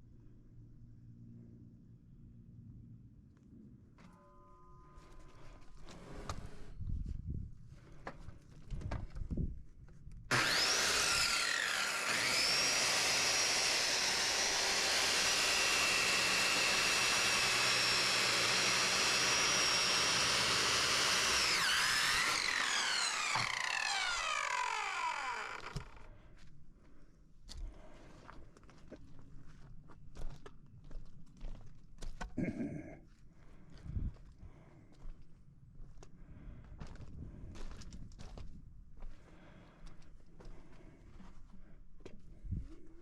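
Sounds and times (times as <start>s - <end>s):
power tool motor whine: 10.3s - 26.1s.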